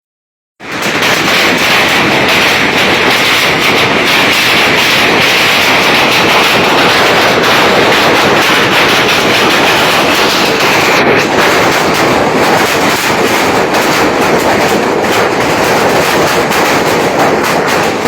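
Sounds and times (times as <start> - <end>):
hailstones pelting down: 0.6 - 18.0.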